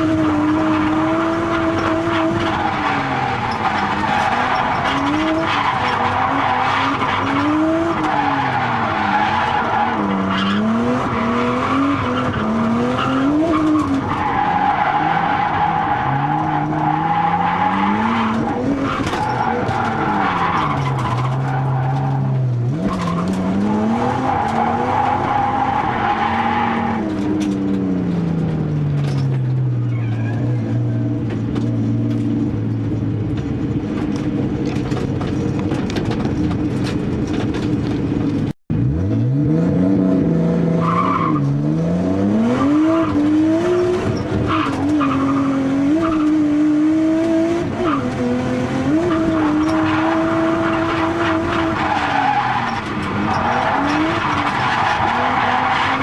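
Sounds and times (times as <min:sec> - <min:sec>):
car engine revving: 0:00.0 - 0:56.0
tyre squeal: 0:29.8 - 0:30.7, 0:48.9 - 0:56.0.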